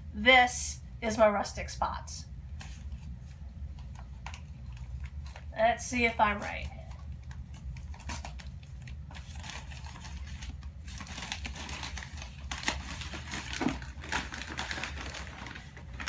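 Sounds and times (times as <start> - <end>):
steady low hum: 0.0 - 16.0
paper wrapping crinkling: 6.4 - 16.0.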